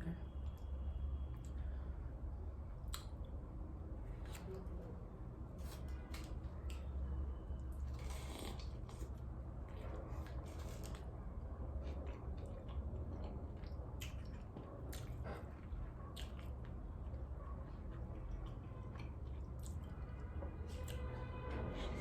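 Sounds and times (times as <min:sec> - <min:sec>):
close chewing mouth sounds: 0:07.8 - 0:21.0.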